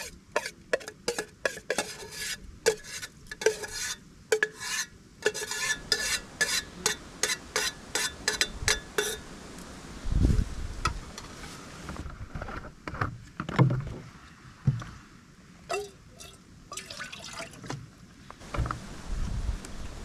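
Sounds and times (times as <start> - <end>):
spoon scraping a pot: 0.0 - 9.2.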